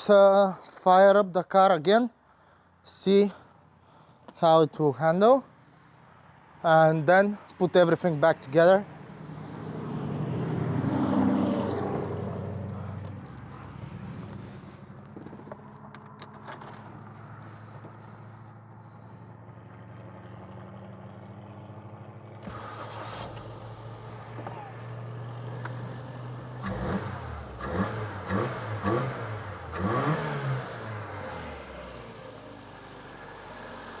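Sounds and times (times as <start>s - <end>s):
car engine idling and revving: 8.9s - 34.0s.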